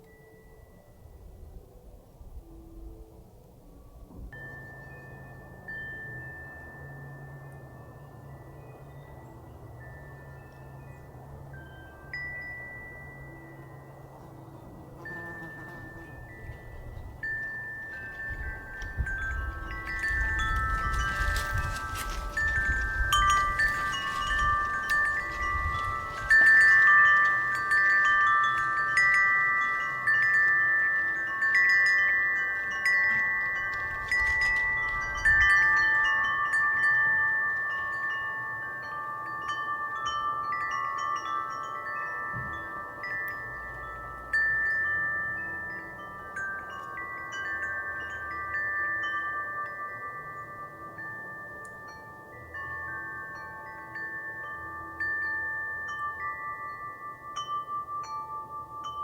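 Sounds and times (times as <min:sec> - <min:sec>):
metal wind chimes ringing: 0:00.0 - 0:59.0
low wind rumble: 0:15.9 - 0:51.0.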